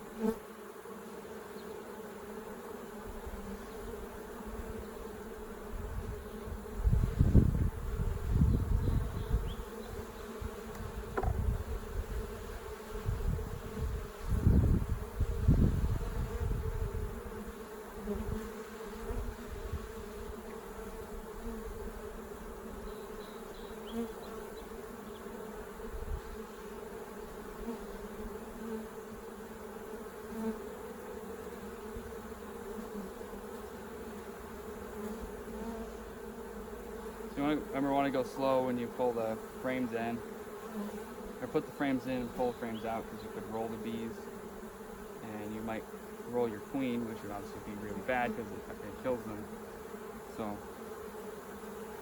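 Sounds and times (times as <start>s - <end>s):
honeybees buzzing: 0.0s - 52.0s
hive handling bumps: 8.9s - 14.7s.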